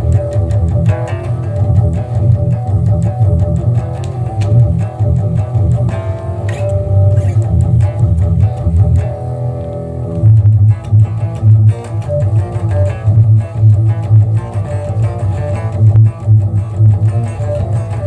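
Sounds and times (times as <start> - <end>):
electric guitar: 0.0 - 18.0
subwoofer bass pulsing: 0.0 - 18.0.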